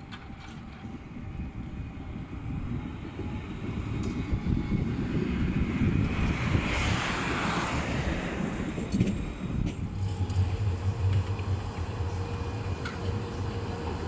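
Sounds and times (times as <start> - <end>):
tram rumbling past: 0.0 - 14.0.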